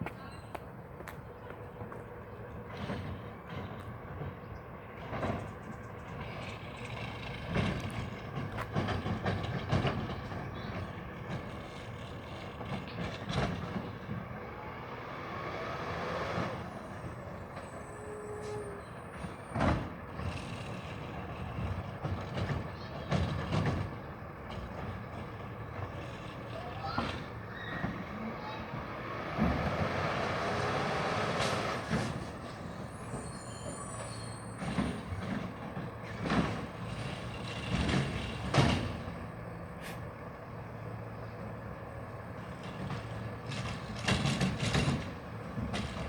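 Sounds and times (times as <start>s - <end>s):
garbage truck running: 0.6s - 46.0s
knocks and clanks: 42.6s - 46.0s.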